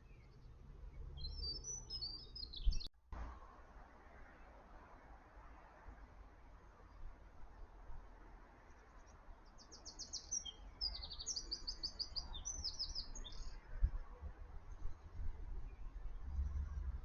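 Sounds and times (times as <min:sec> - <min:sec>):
small bird chirping: 0:00.0 - 0:02.9, 0:09.6 - 0:13.6.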